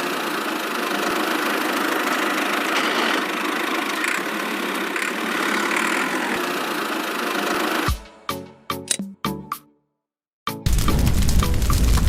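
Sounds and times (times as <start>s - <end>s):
small motor running steadily: 0.0s - 8.0s.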